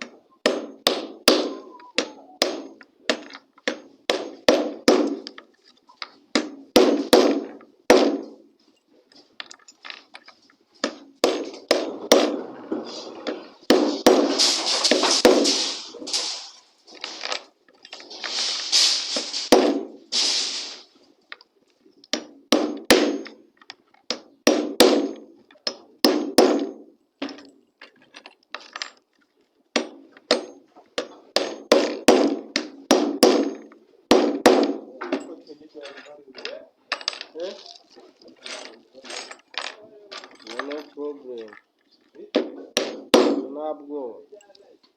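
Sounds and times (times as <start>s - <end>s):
hammer driving nails into wood: 0.4s - 5.5s, 6.3s - 8.4s, 13.3s - 17.4s, 18.2s - 20.7s, 22.1s - 23.4s, 24.1s - 27.4s, 29.7s - 35.3s, 42.4s - 43.6s
scraping noise: 12.0s - 17.4s, 18.0s - 20.9s.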